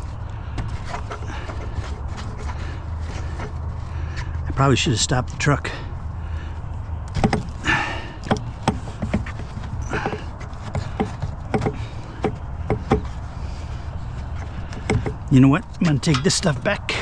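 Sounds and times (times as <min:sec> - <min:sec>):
scraping or rustling noise: 0:00.0 - 0:04.6
truck engine idling: 0:00.0 - 0:17.0
scrap metal clanking: 0:07.1 - 0:17.0.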